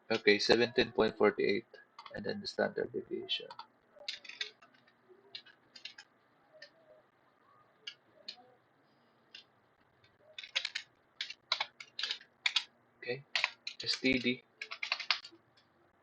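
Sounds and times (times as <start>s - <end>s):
computer keyboard keystrokes: 3.5s - 6.7s, 10.4s - 12.7s, 13.3s - 15.4s.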